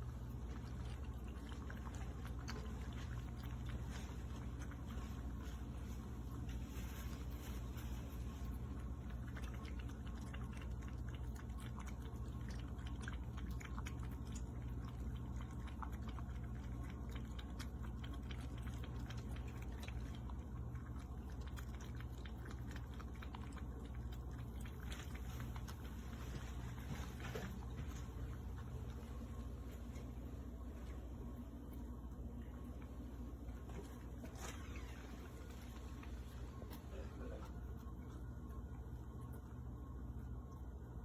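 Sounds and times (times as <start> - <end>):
cat lapping water: 0.0 - 41.0
water fountain hum: 32.1 - 40.0.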